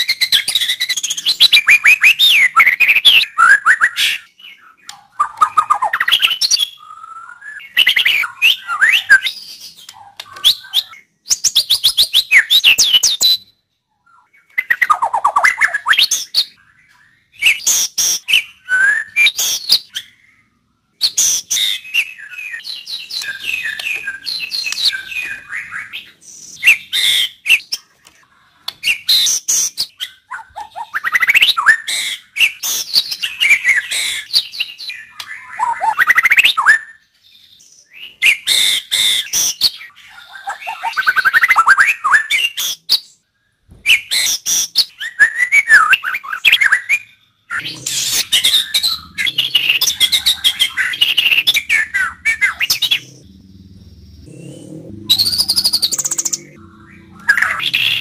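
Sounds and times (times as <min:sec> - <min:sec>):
songbird whistling and chattering: 0:00.0 - 0:20.4, 0:21.0 - 0:27.9, 0:43.8 - 0:58.0.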